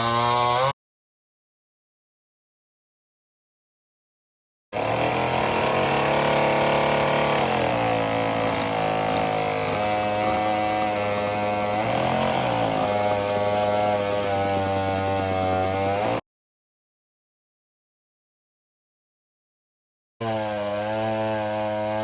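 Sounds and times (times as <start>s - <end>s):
two-stroke chainsaw engine running: 4.8s - 16.2s, 20.2s - 22.0s.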